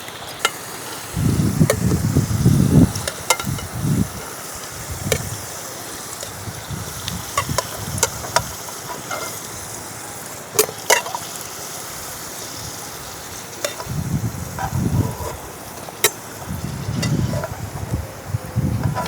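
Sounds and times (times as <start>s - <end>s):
food sizzling in a pan: 0.0s - 19.0s
utensil clinking on pan: 2.9s - 3.7s, 13.6s - 13.9s.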